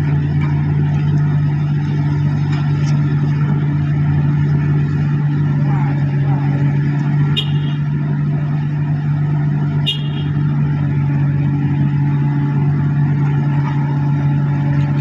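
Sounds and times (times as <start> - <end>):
heavy engine humming: 0.0 - 15.0.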